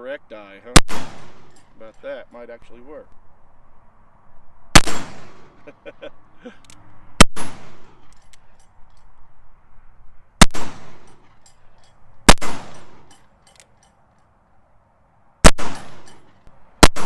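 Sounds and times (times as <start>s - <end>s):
revolver shots echoing: 0.8s - 1.7s, 4.8s - 5.6s, 12.3s - 13.2s, 15.4s - 17.0s.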